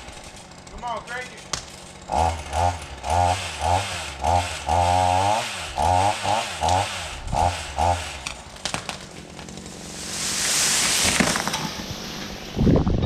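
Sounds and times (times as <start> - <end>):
chainsaw revving in bursts: 0.0 - 12.6.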